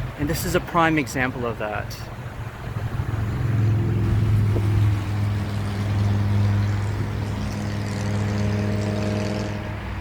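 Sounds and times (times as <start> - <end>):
large vehicle engine droning: 2.1 - 10.0.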